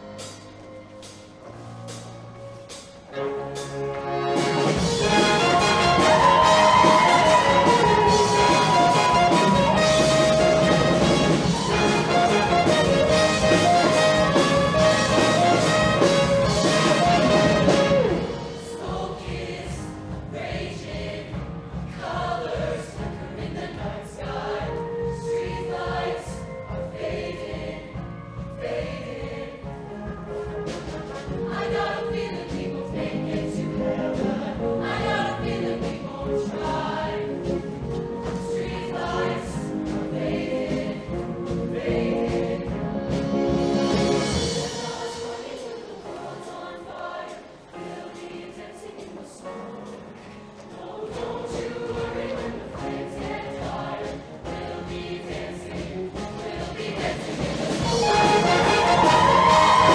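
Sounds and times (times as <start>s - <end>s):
choir singing with live band: 0.0s - 59.9s.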